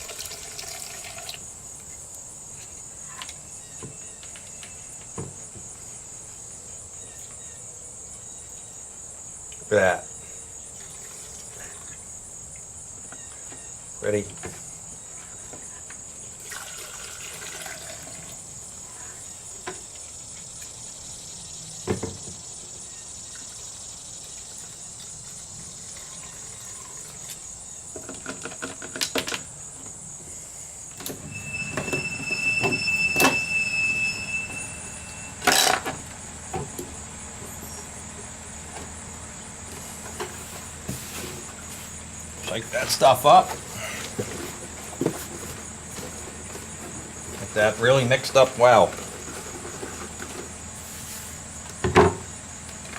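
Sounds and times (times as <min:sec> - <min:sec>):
crickets chirring: 0:00.0 - 0:52.9
knocks and rustling of containers: 0:27.9 - 0:29.9, 0:39.7 - 0:50.8, 0:51.7 - 0:52.9
brief high squeal: 0:31.2 - 0:35.7.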